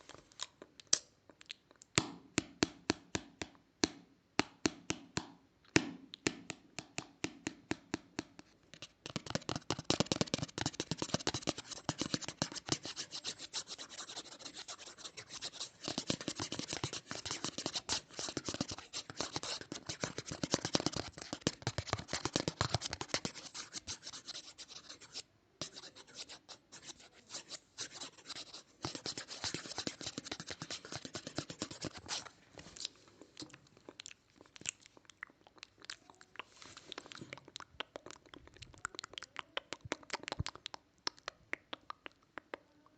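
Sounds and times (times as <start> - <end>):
close-up scratching: 8.8 - 33.4.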